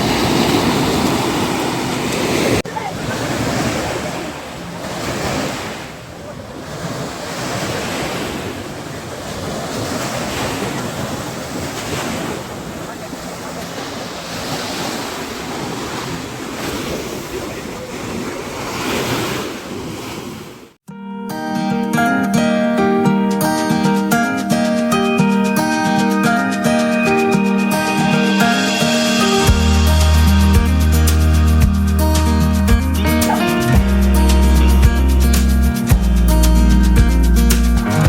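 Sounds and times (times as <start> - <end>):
sea surf washing onto beach: 0.0 - 20.8, 23.5 - 38.0
background music: 20.9 - 38.0.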